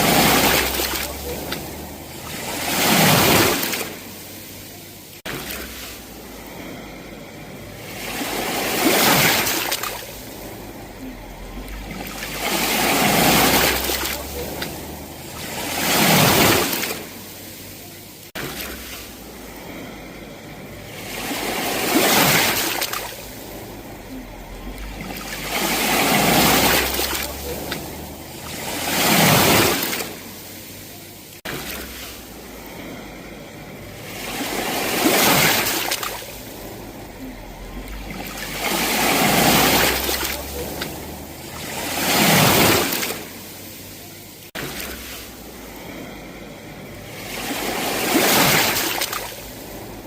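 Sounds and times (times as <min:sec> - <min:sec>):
sea waves crashing: 0:00.0 - 0:50.0.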